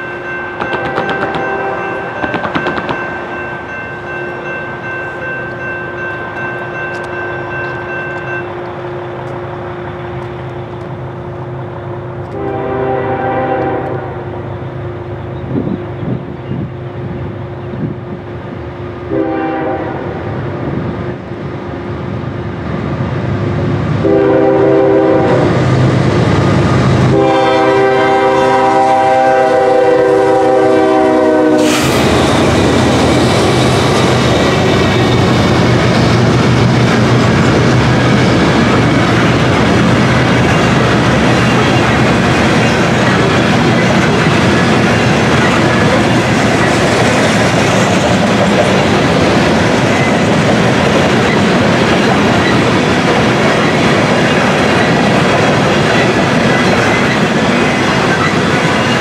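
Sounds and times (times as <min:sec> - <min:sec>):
train wheels rumbling on rails: 0:00.0 - 0:59.0
locomotive horn blasts: 0:00.6 - 0:02.4, 0:12.3 - 0:14.5, 0:19.1 - 0:20.4, 0:24.0 - 0:25.6, 0:27.0 - 0:32.1.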